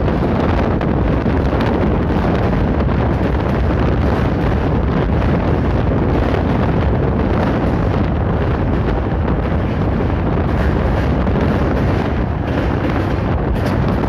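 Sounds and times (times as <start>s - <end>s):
low rumble: 0.0s - 14.0s
wind buffeting microphone: 0.0s - 14.0s.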